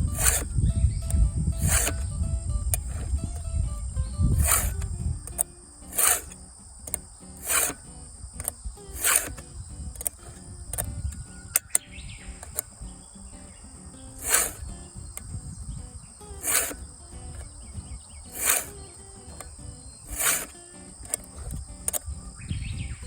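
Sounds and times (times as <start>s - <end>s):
file rasping on chainsaw teeth: 0.0s - 2.1s, 4.4s - 7.9s, 8.9s - 10.4s, 14.1s - 15.3s, 16.3s - 17.5s, 18.3s - 21.6s
insect drone: 0.0s - 23.0s
light clicks: 0.1s - 22.3s.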